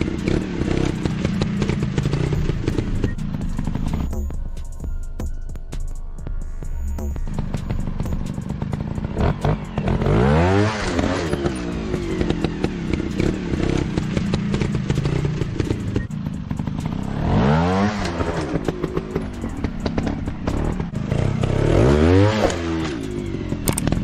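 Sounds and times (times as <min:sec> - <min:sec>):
motorcycle engine revving: 0:00.0 - 0:05.0, 0:06.0 - 0:24.0.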